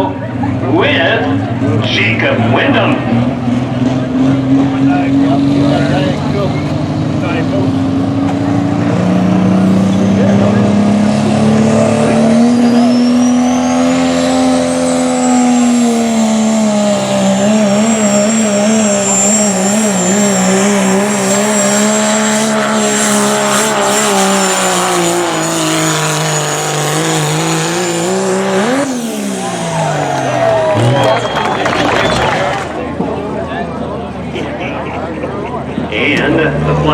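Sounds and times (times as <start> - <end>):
diesel truck engine under load: 0.0 - 36.9
turbocharger whistle: 12.1 - 15.8, 27.6 - 32.8.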